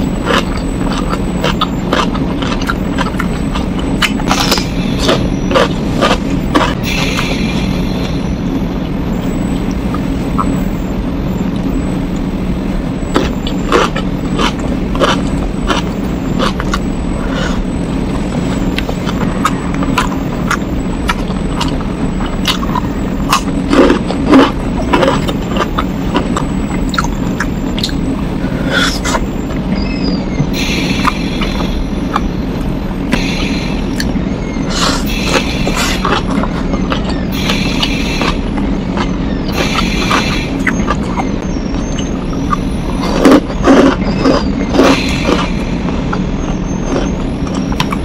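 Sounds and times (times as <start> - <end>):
chewing: 0.0 - 8.2, 9.5 - 10.8, 13.1 - 30.0, 30.6 - 32.3, 33.1 - 48.0
low hum: 0.0 - 48.0
wet mouth clicks: 0.3 - 7.7, 18.7 - 28.0, 28.6 - 29.3, 33.9 - 34.1, 34.7 - 38.4.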